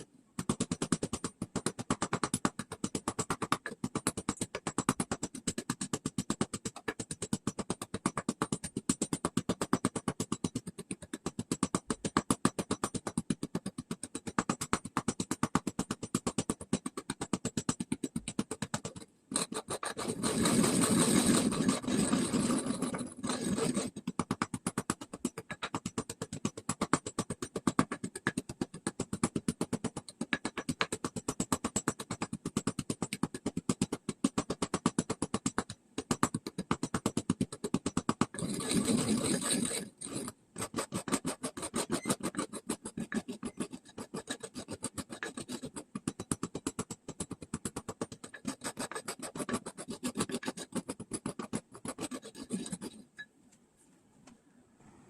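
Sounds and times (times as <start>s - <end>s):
rock salt being ground by hand: 15.7s - 53.1s.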